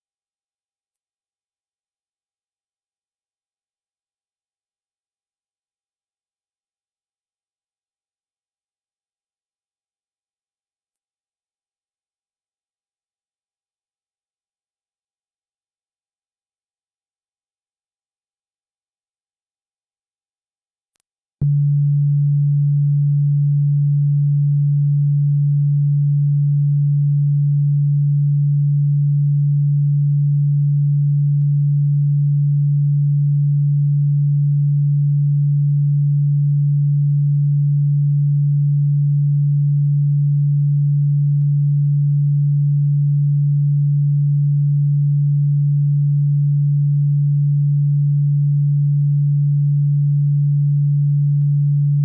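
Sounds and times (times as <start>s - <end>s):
low electronic sine tone: 21.4s - 52.0s.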